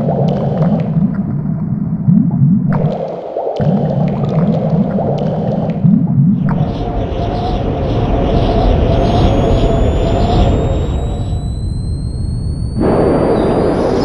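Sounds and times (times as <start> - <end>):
water gurgling: 0.0 - 7.6.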